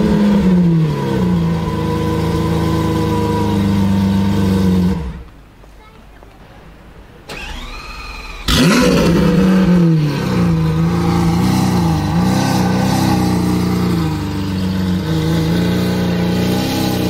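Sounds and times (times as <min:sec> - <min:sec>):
car engine firing and idling: 0:07.2 - 0:17.0
starter motor whirring: 0:07.3 - 0:11.9.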